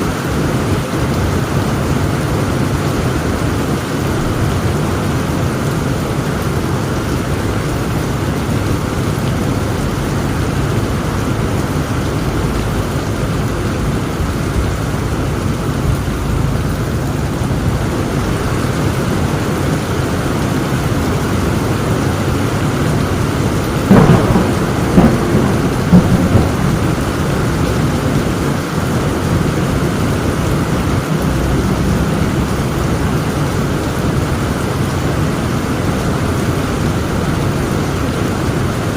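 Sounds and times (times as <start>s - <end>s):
heavy rain falling: 0.0s - 38.9s
thunder cracks: 23.6s - 34.5s.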